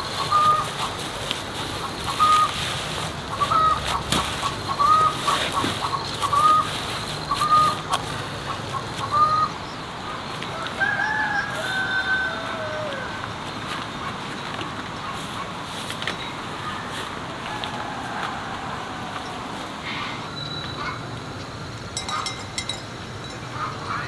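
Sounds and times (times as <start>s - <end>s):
bird calling: 0.0s - 24.0s.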